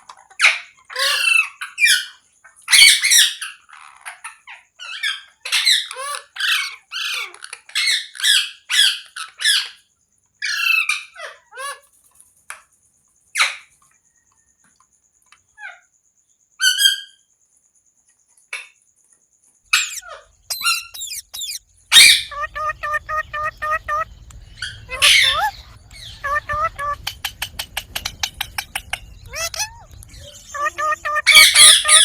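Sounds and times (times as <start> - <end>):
parrot squawking and chirping: 2.7 - 3.5, 19.7 - 32.0.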